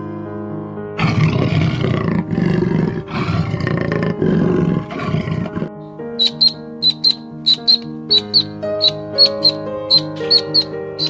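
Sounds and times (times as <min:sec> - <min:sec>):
soft background music: 0:00.0 - 0:11.0
large animal roaring: 0:01.0 - 0:05.8.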